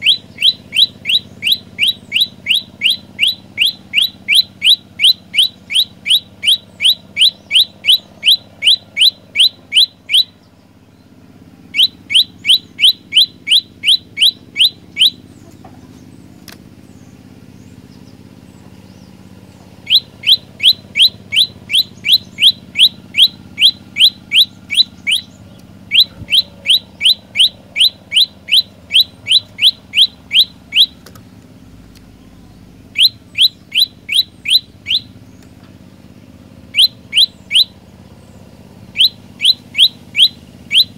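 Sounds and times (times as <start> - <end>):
songbird rapid chirping: 0.0 - 40.9.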